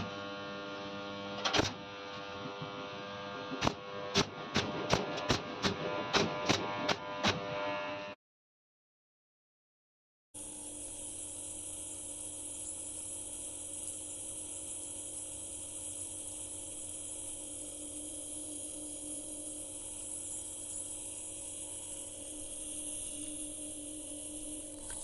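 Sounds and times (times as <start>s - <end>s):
electrical hum with hiss: 10.4s - 25.0s.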